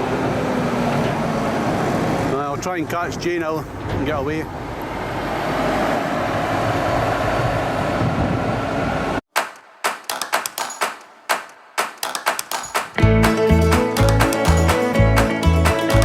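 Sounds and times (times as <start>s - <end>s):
country music backing: 13.0s - 16.0s
plucked guitar notes: 13.0s - 16.0s.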